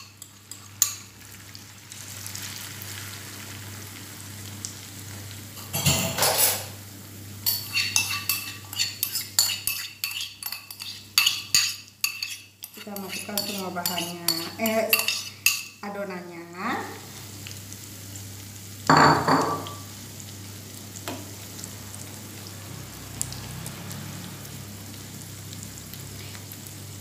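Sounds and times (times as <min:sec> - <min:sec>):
metal spoon scraping and clinking: 0:00.0 - 0:01.1, 0:07.4 - 0:15.8
batter sizzling in hot oil: 0:00.0 - 0:27.0.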